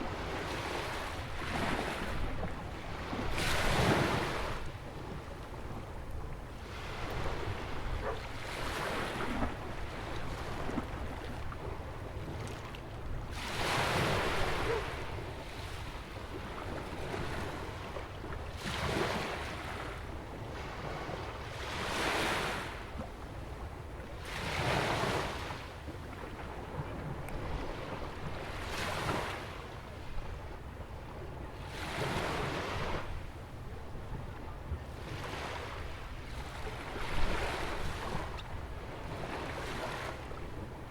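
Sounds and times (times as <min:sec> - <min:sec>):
ocean waves breaking: 0:00.0 - 0:05.8, 0:13.3 - 0:17.9, 0:35.0 - 0:40.9
wind rumble on microphone: 0:00.0 - 0:21.4, 0:22.0 - 0:40.9.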